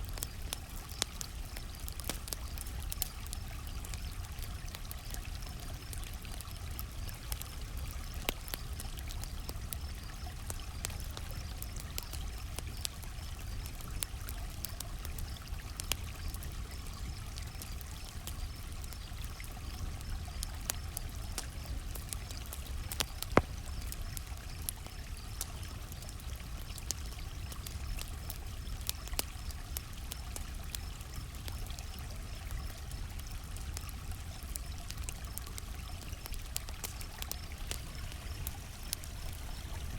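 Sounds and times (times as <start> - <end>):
campfire crackling and popping: 0.0 - 39.9
crickets chirping: 34.6 - 39.9.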